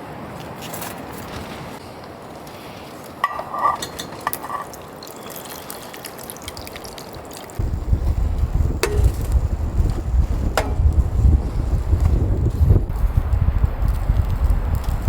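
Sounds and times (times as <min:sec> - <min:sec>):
wind buffeting microphone: 0:07.6 - 0:15.0.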